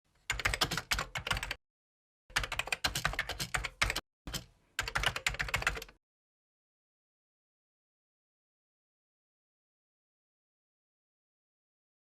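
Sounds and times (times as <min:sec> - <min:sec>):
keyboard keys clicking: 0:00.3 - 0:01.6, 0:02.3 - 0:06.0.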